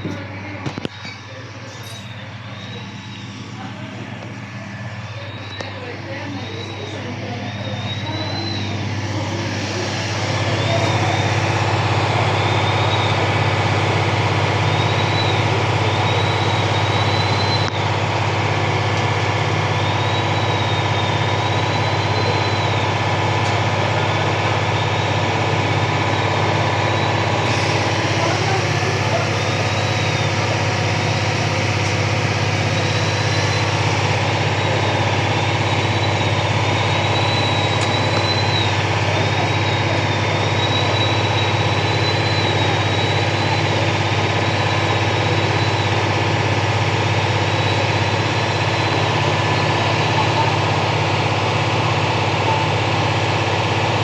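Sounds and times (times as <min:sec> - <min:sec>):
truck engine idling: 0:00.0 - 0:54.0
high wavering whine: 0:00.1 - 0:13.6.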